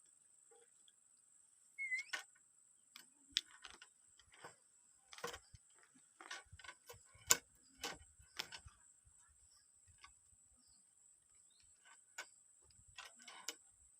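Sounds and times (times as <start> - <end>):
parrot chirp: 1.8 - 2.2.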